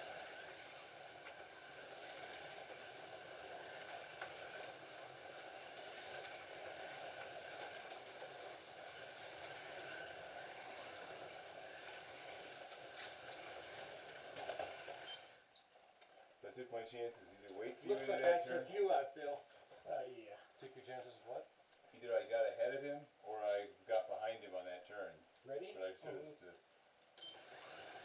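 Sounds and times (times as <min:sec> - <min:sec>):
slot cars whirring: 0:00.0 - 0:15.6, 0:27.2 - 0:28.0.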